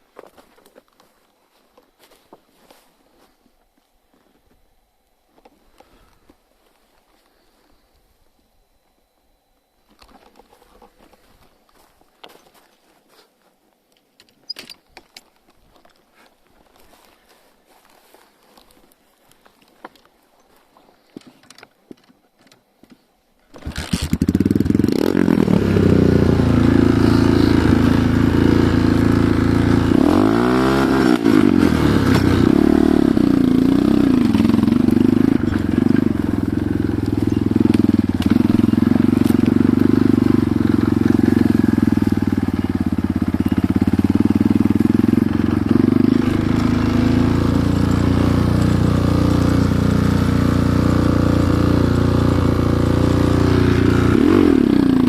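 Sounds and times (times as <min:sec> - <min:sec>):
motorcycle engine running: 0:23.6 - 0:55.0.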